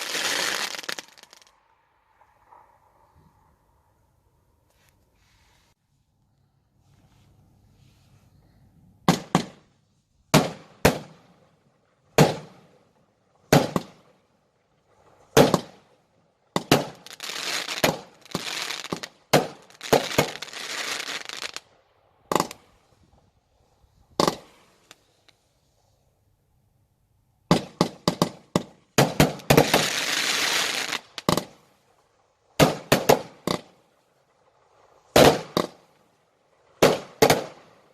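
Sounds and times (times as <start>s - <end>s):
fireworks crackling: 0.0s - 3.0s, 16.5s - 22.9s, 27.5s - 37.9s
fireworks bangs: 0.0s - 3.1s, 9.0s - 9.7s, 10.3s - 11.4s, 12.2s - 12.7s, 13.5s - 14.1s, 15.2s - 15.8s, 16.5s - 21.6s, 24.1s - 25.0s, 27.5s - 31.6s, 32.6s - 33.8s, 35.0s - 35.9s, 36.7s - 37.8s.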